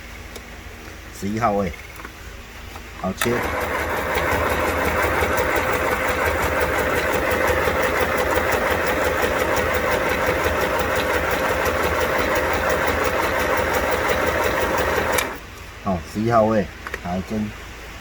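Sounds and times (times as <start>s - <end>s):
sewing machine stitching: 3.2s - 15.4s.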